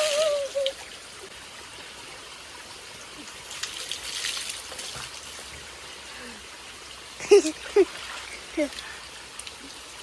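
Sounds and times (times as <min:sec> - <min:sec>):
water splashing: 0:00.0 - 0:01.3, 0:03.1 - 0:05.8
small stream running: 0:00.0 - 0:10.0.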